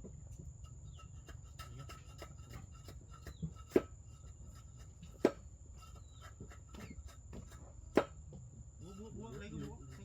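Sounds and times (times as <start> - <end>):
sharp knocks on wood: 5.2 - 5.4, 6.7 - 8.2.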